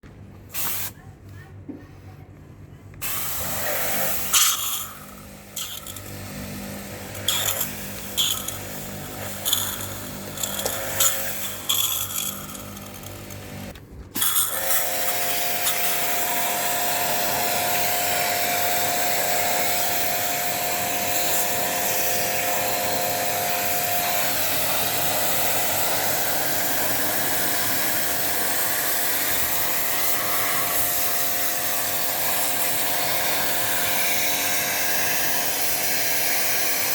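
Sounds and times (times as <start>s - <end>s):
short hissing bursts: 0.5s - 1.0s, 3.0s - 6.0s
small electric machine whining: 3.4s - 36.9s.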